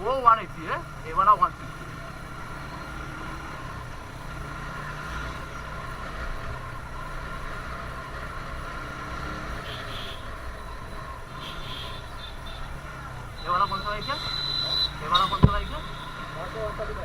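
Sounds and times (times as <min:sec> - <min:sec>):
motorcycle engine running: 0:00.0 - 0:17.0
road noise: 0:00.0 - 0:17.0.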